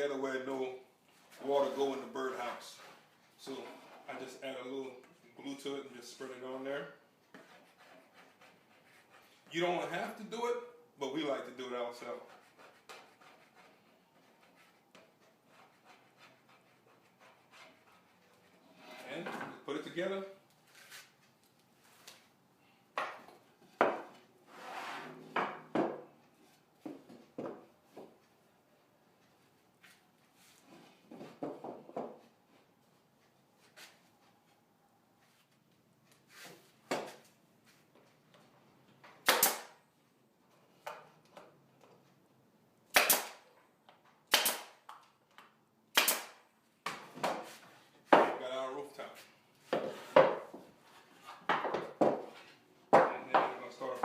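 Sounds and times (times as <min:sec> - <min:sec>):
wood scraping slide: 0:24.5 - 0:25.4
pneumatic nailer firing: 0:39.2 - 0:39.7, 0:42.9 - 0:43.4, 0:44.3 - 0:44.8, 0:45.9 - 0:46.4.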